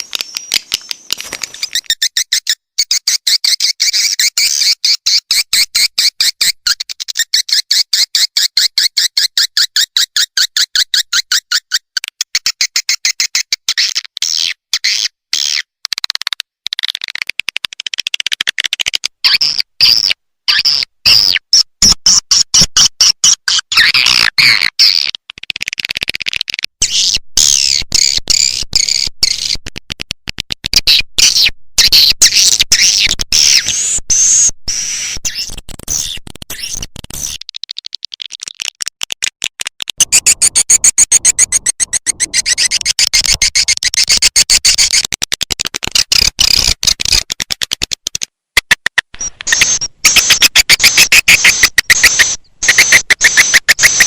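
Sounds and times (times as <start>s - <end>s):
swiftlets chirping and twittering: 0.2s - 5.3s, 40.0s - 45.0s.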